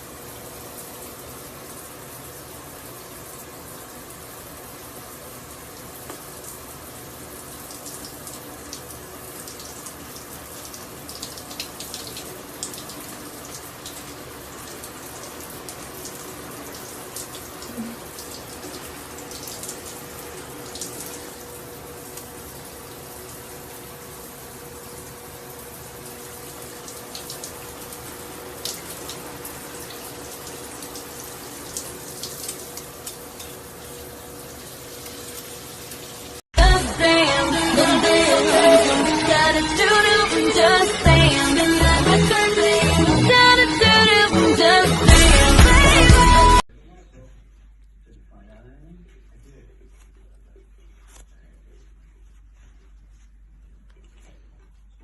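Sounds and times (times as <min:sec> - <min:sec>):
running water: 0:00.0 - 0:36.4.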